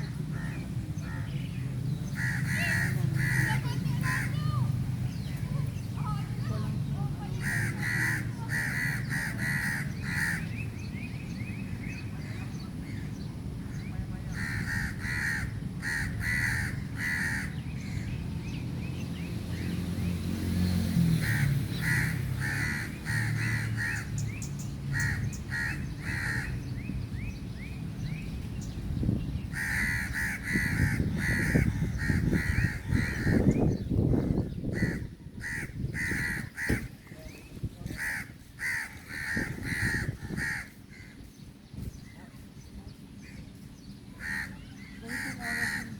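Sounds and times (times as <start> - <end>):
birds calling harshly: 0.0 - 45.9
steady low rumble: 23.2 - 43.9.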